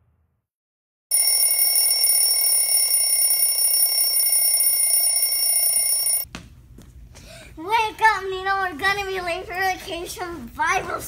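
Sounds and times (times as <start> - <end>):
alarm clock ringing: 1.1 - 6.2.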